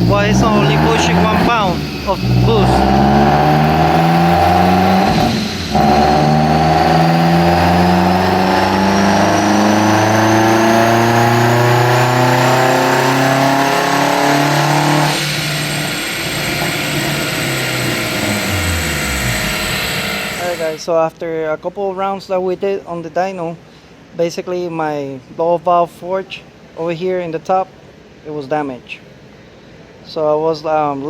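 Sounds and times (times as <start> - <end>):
car engine revving under load: 0.0 - 20.8.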